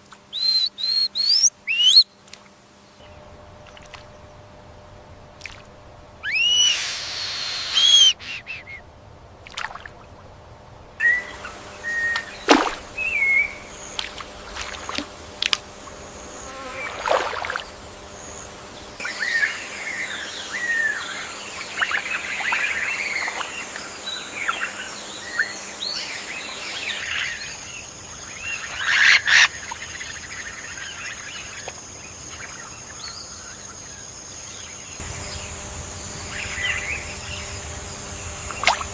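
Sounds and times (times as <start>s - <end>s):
bird chirps and whistles: 0.3s - 2.1s, 6.2s - 8.8s, 11.0s - 13.7s
high insect drone: 2.7s - 38.9s
loud bird call: 6.2s - 8.9s.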